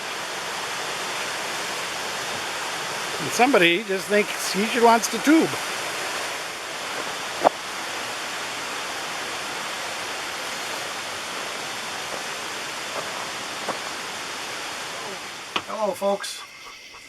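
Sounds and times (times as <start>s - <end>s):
creek water flowing: 0.0s - 17.0s.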